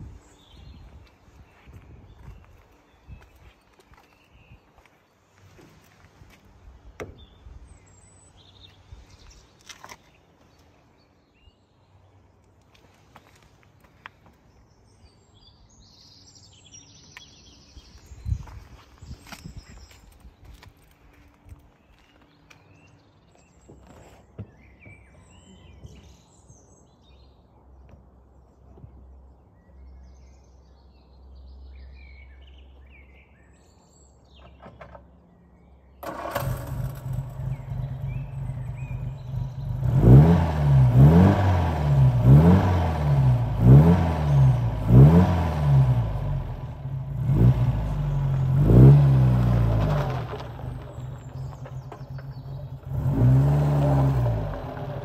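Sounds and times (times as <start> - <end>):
birds chirping faintly: 0.0 - 55.0
car engine starting and revving: 36.0 - 55.0.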